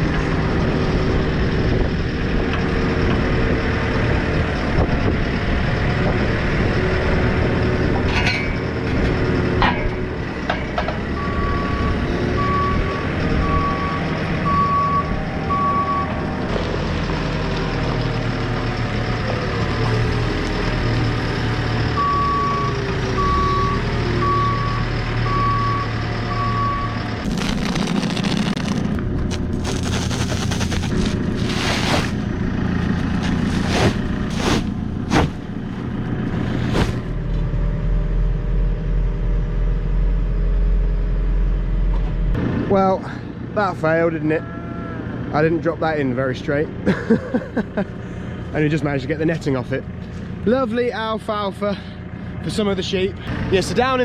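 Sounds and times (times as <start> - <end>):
diesel engine running: 0.0 - 54.0
reversing alarm beeping: 11.1 - 16.4, 21.9 - 27.2.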